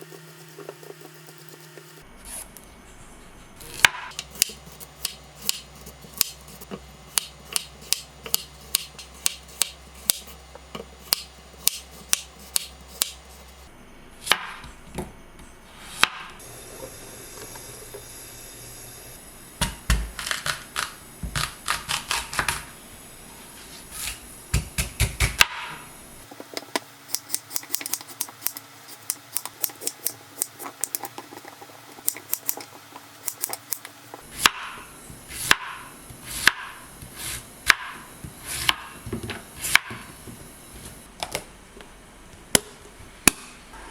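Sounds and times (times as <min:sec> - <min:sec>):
knife chopping on cutting board: 0:03.8 - 0:10.4, 0:11.0 - 0:13.5, 0:23.9 - 0:25.7, 0:32.0 - 0:39.0, 0:39.6 - 0:40.1.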